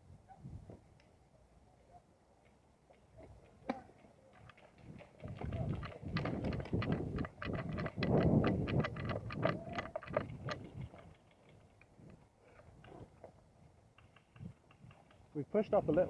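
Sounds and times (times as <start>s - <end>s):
kit and gun rattling: 4.4s - 13.3s.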